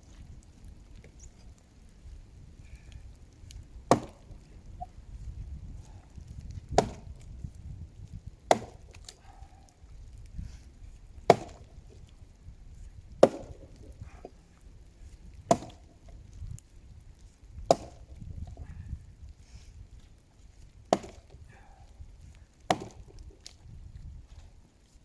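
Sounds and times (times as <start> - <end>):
axe chopping into tree trunk: 3.9 - 4.4, 6.6 - 7.3, 8.5 - 9.2, 11.2 - 11.8, 13.2 - 14.4, 15.4 - 16.2, 17.6 - 18.6, 20.9 - 21.7, 22.7 - 23.5.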